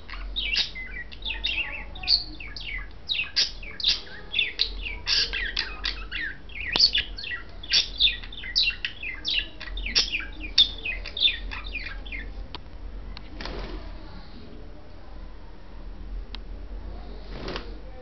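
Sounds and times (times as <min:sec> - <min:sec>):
budgerigars chirping: 0:00.0 - 0:12.4.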